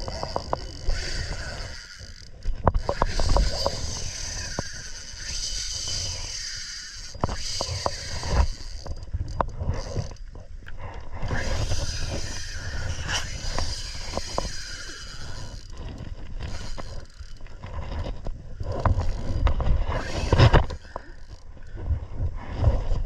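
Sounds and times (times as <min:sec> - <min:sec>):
wind buffeting microphone: 0:02.5 - 0:06.4, 0:11.1 - 0:23.0.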